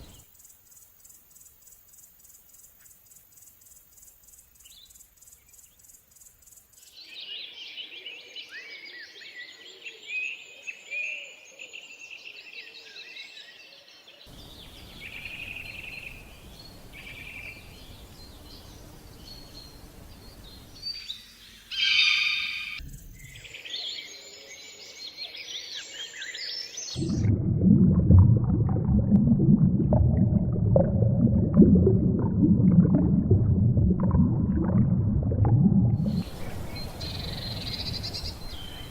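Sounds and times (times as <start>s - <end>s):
birds chirping: 0.0s - 0.3s, 14.3s - 24.2s, 36.0s - 38.9s
loud pitched animal call: 21.7s - 22.8s.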